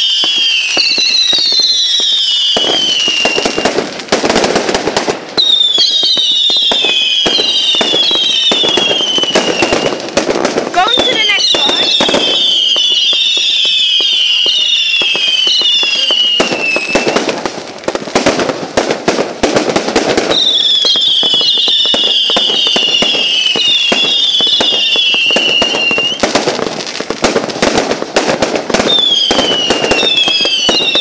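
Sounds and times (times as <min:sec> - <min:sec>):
firework whistle falling in pitch: 0:00.0 - 0:03.7, 0:05.4 - 0:10.0, 0:10.9 - 0:17.3, 0:20.2 - 0:26.2, 0:28.9 - 0:31.0
fireworks crackling bangs: 0:00.0 - 0:31.0.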